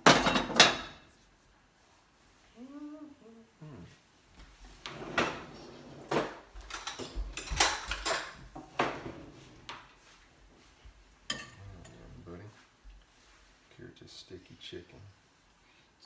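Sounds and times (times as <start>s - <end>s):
utensils clattering on pan and plate: 0.0s - 1.1s, 4.9s - 9.9s, 11.3s - 12.0s.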